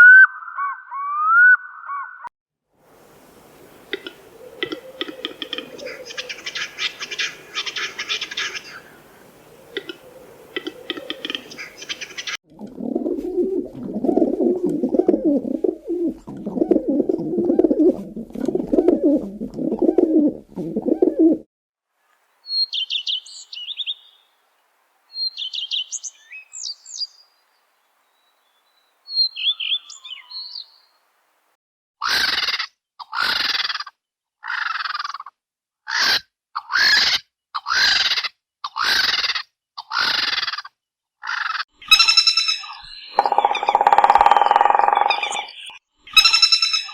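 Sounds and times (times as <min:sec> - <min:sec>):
low repeated bird calls: 0:00.0 - 0:02.3, 0:02.9 - 0:12.4, 0:22.4 - 0:24.4, 0:25.1 - 0:31.1, 0:41.3 - 0:46.9
loud bird calls: 0:03.0 - 0:12.4, 0:22.4 - 0:24.4, 0:25.1 - 0:27.4, 0:28.0 - 0:31.1, 0:41.2 - 0:46.9
short high bird chirps: 0:41.8 - 0:46.9.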